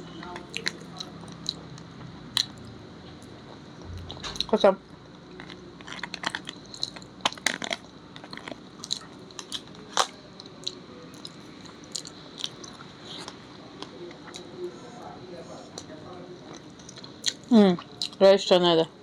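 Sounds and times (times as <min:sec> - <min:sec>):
person chewing crunchy food: 0:00.2 - 0:02.6, 0:05.2 - 0:14.5.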